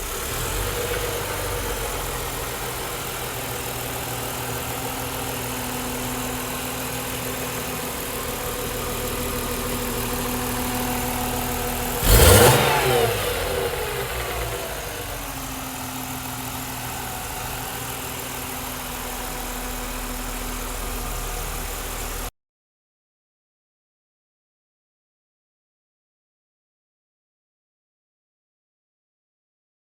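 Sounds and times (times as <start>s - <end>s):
car engine idling and revving: 0.0s - 22.3s.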